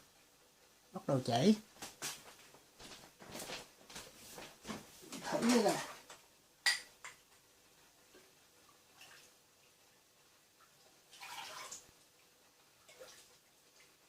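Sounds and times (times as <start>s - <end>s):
faint ticks and drips: 5.1s - 14.0s
liquid splash: 11.1s - 11.9s.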